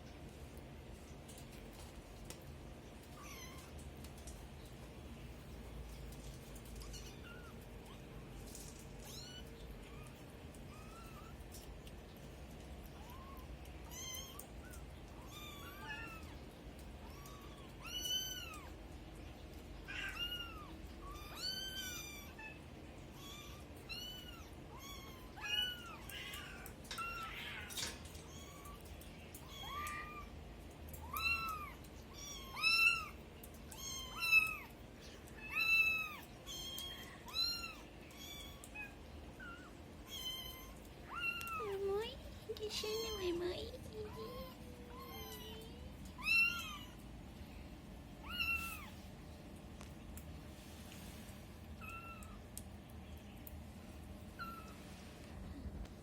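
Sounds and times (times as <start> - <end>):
kittens meowing: 19.9 - 30.3, 30.9 - 41.8, 42.7 - 47.0, 48.2 - 49.0.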